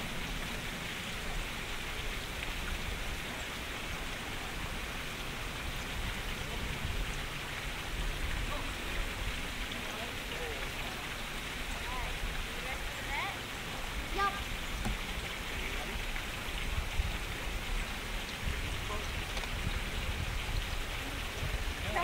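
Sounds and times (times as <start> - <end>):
wind buffeting the microphone: 4.3 - 9.6, 15.6 - 22.0.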